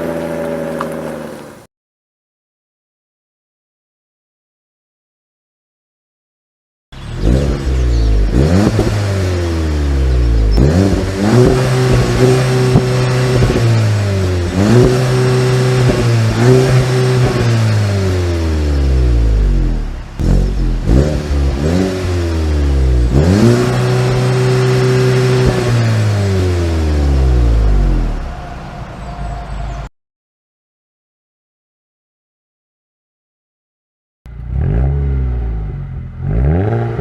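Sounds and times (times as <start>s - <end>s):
car engine revving: 0.0s - 1.7s, 7.0s - 29.9s, 34.3s - 37.0s.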